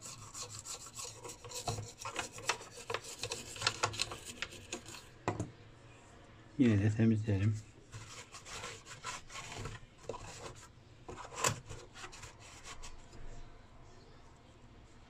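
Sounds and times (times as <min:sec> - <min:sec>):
rubbing and scraping strokes: 0:00.0 - 0:05.1, 0:07.4 - 0:13.2.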